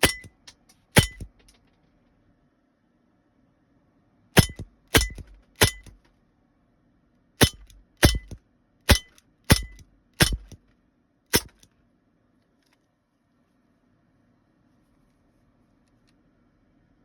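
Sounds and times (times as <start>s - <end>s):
airsoft pistol shots: 1.0s - 1.3s, 4.4s - 5.9s, 7.4s - 10.6s, 11.3s - 11.6s.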